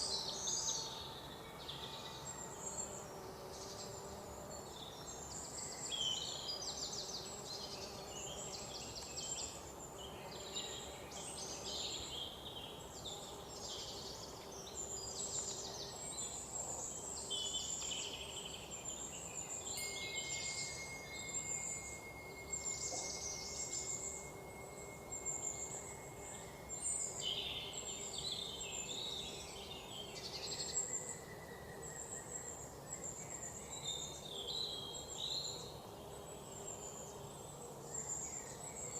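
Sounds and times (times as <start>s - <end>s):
high whistle-like tone: 19.8s - 26.9s.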